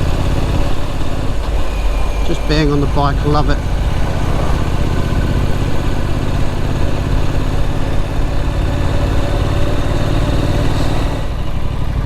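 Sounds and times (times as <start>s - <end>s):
rush of wind noise: 0.0s - 9.6s
motorcycle engine running: 0.0s - 12.0s.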